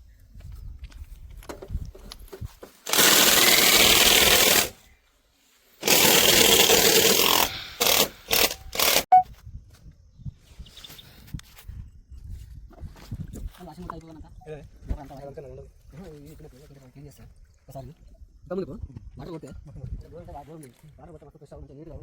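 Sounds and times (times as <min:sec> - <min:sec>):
high-pressure jet hissing: 0:05.8 - 0:09.1.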